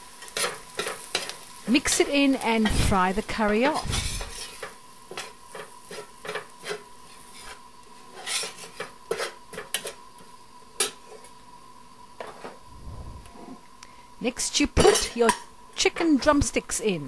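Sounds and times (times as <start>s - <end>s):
onions frying in oil: 0.0s - 12.7s
utensil scraping a frying pan: 0.1s - 1.6s, 2.6s - 10.0s.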